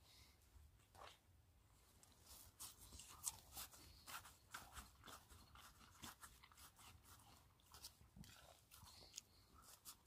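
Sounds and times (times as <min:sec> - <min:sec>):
crunching and chewing food: 0:02.0 - 0:10.0.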